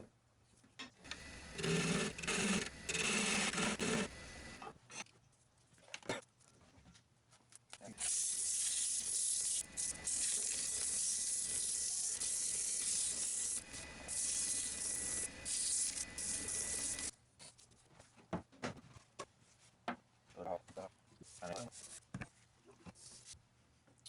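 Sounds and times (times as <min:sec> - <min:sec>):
tool scraping wood on a lathe: 0:01.1 - 0:04.6, 0:09.7 - 0:17.1.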